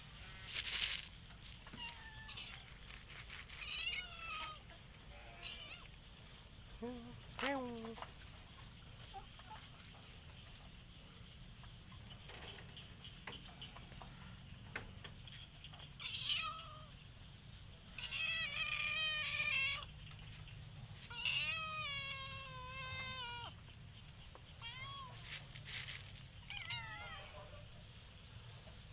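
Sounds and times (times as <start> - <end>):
cat meowing: 1.8 - 2.7, 3.6 - 5.9, 16.0 - 16.9, 18.0 - 19.9, 21.1 - 23.6, 24.6 - 25.2, 26.5 - 27.6.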